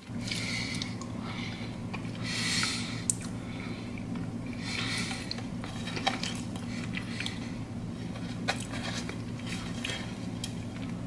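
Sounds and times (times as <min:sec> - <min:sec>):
steady low hum: 0:00.0 - 0:11.0
person chewing: 0:01.8 - 0:11.0
wet mouth clicks and smacks: 0:02.6 - 0:03.4.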